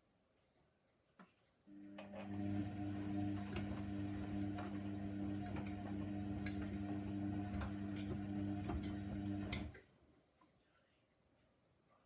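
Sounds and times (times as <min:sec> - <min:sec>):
washing machine motor humming: 0:01.7 - 0:09.8.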